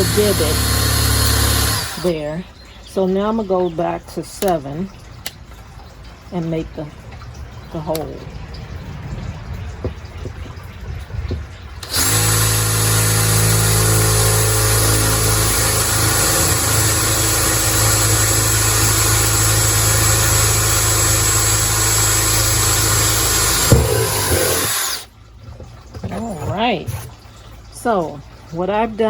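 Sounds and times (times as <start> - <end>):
electric drill boring: 0.0 - 2.1, 11.8 - 25.1.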